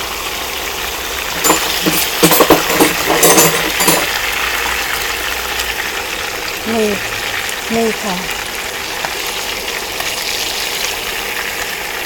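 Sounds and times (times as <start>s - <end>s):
hot oil sizzling in wok: 0.0s - 12.0s
metal spatula clinks and scrapes: 1.4s - 4.2s.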